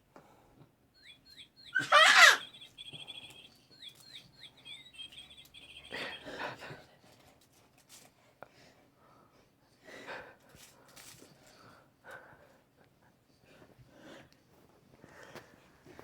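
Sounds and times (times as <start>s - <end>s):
birds chirping: 1.0s - 6.5s
brief falling cry: 1.7s - 2.6s.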